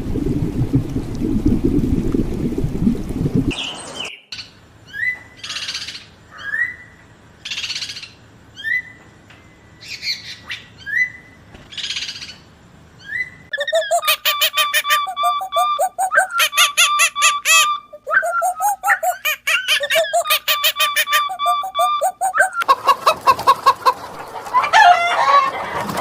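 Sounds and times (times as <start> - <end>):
rapid pitched animal call: 13.5 - 24.0
bird calling: 13.5 - 24.2.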